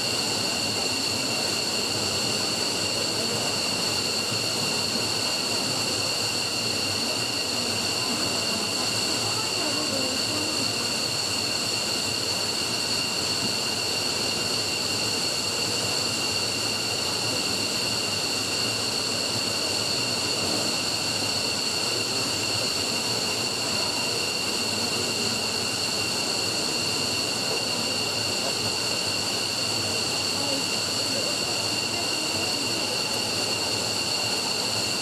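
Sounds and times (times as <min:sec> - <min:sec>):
high-pitched turbine whine: 0:00.0 - 0:35.0
jet engine roar: 0:00.0 - 0:35.0.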